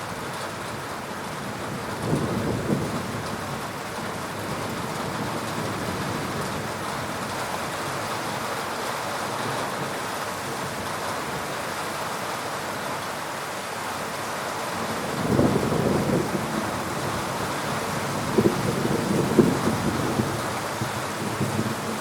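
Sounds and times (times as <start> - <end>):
heavy rain falling: 0.0 - 22.0
thunder rumbling: 14.8 - 22.0.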